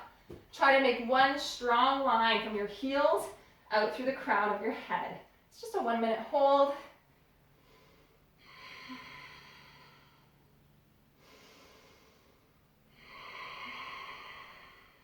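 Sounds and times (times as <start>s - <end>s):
woman breathing hard: 7.5s - 10.5s, 11.1s - 15.0s.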